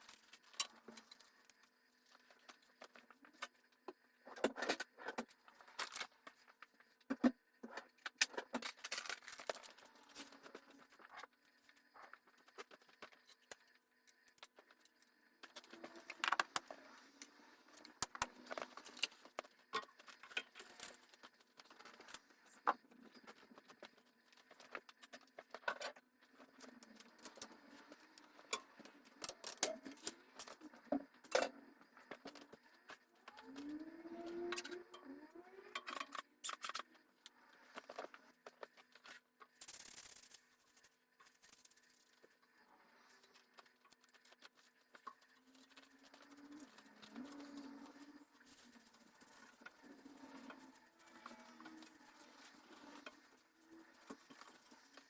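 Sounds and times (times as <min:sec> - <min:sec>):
household objects clicking and rattling: 0:00.0 - 0:37.1.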